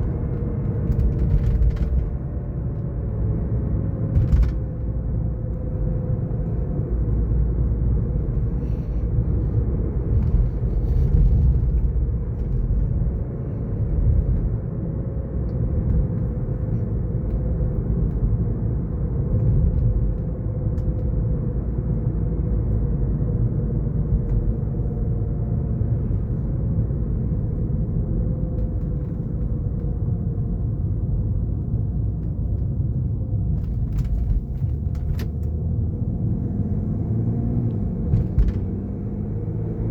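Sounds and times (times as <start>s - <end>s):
car drivetrain and road rumble: 0.0s - 39.9s.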